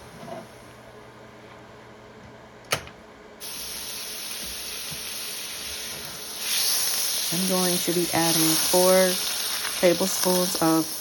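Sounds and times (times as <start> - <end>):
food sizzling in hot pan: 3.4 - 11.0.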